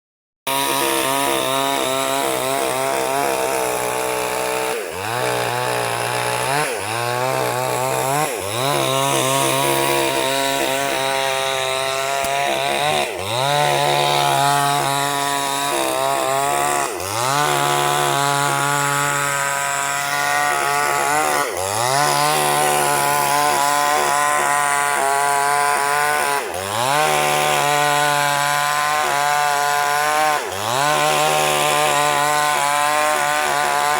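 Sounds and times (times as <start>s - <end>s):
chainsaw cutting log: 0.5s - 33.9s.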